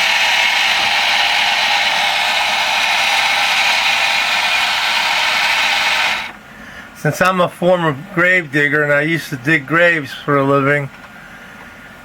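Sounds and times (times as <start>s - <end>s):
toy electric motor whirring: 0.0s - 6.4s.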